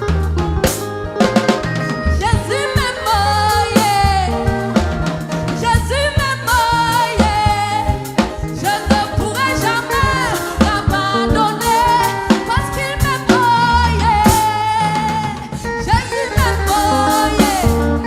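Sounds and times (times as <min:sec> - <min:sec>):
live band with bass and drums: 0:00.0 - 0:18.0
singer and choir singing: 0:02.4 - 0:18.0.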